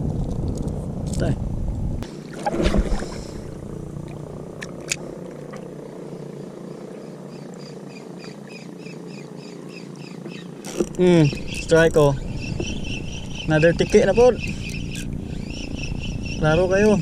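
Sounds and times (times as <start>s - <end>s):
insect chirping: 5.2s - 17.0s.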